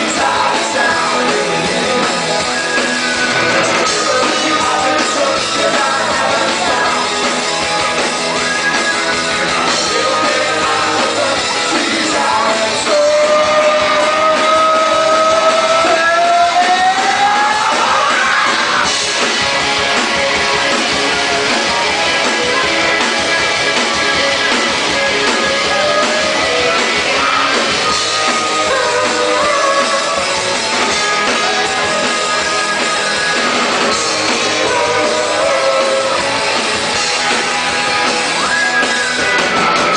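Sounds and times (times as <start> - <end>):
person singing: 0.0 - 7.6, 9.0 - 18.9, 25.2 - 39.2
rock band playing live: 0.0 - 39.9.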